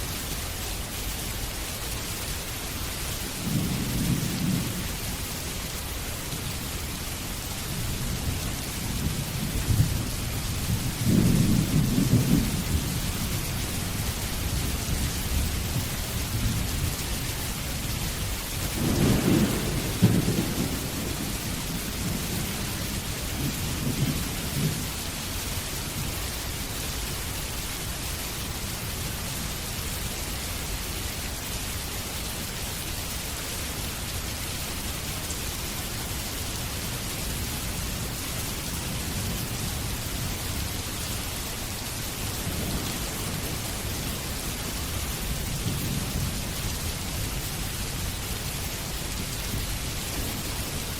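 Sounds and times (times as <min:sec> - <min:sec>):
heavy rain: 0:00.0 - 0:50.9
thunder rumbling: 0:07.8 - 0:17.0, 0:18.6 - 0:25.0.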